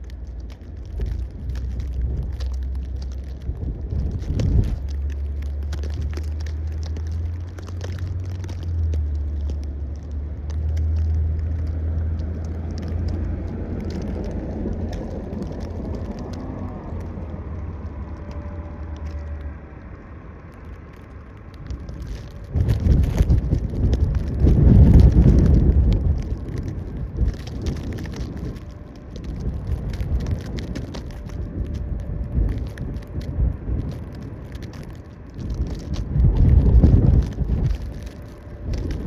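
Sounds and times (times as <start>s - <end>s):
wind gust on microphone: 0.0s - 8.7s, 21.3s - 39.0s
steady low rumble: 0.0s - 39.0s.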